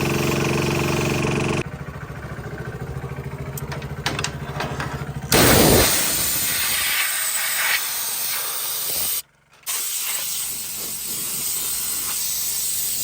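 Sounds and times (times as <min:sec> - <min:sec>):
compressed air hissing: 0:05.3 - 0:13.0.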